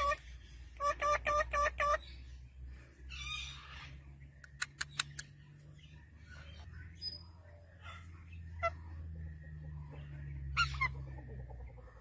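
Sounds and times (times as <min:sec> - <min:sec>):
parrot chick begging calls: 0:00.0 - 0:02.2
sharp clicks: 0:04.4 - 0:05.4.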